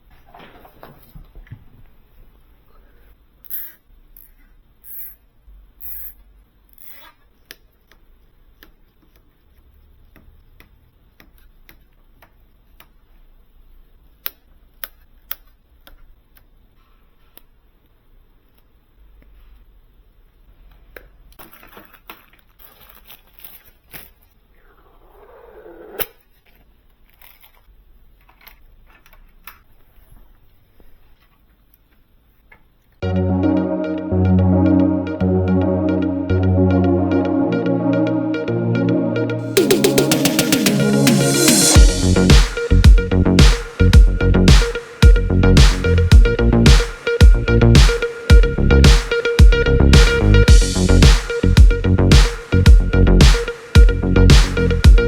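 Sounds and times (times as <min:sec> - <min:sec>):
electronic music: 0:33.0 - 0:55.0.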